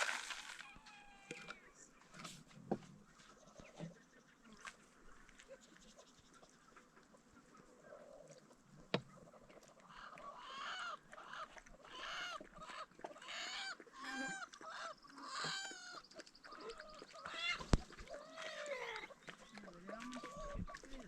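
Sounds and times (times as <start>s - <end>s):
chickens calling: 5.9s - 21.0s.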